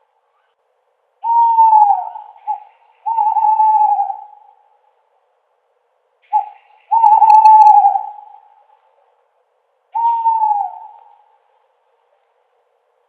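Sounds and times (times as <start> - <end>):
owl hooting: 1.2 - 4.8, 6.2 - 8.8, 9.9 - 11.5.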